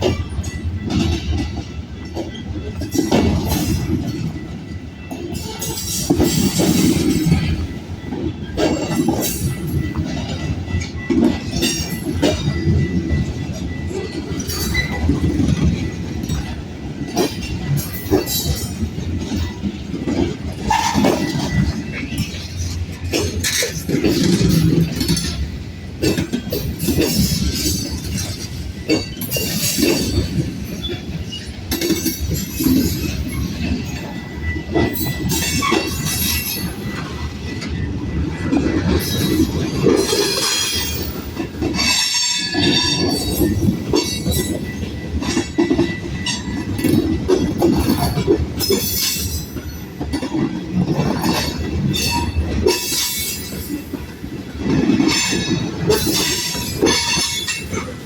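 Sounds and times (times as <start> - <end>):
train cars clanking: 0.0 - 58.0
train wheels rumbling on rail: 0.0 - 58.0.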